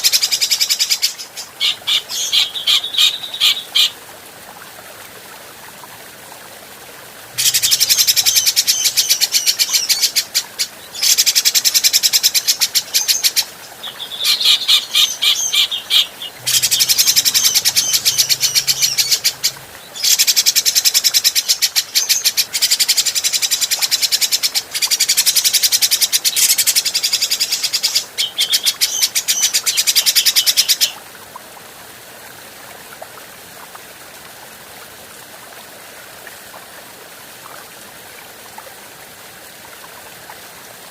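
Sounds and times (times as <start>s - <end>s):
faint background hiss: 0.0s - 40.9s
bird chattering: 7.4s - 10.0s, 14.2s - 20.8s.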